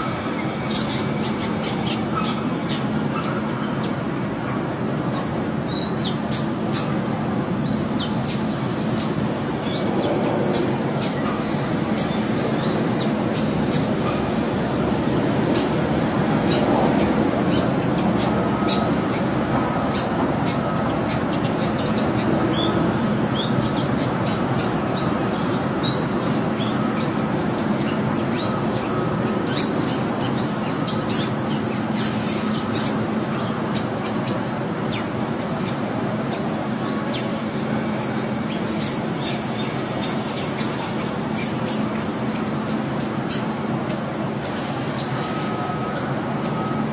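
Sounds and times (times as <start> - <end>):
loud steady rumbling noise: 0.0 - 46.9.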